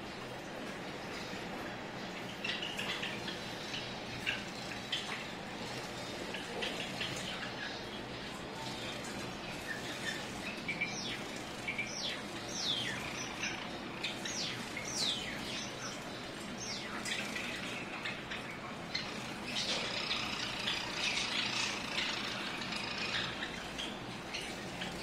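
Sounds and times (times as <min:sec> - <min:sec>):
sparrows chirping: 0:01.0 - 0:25.0.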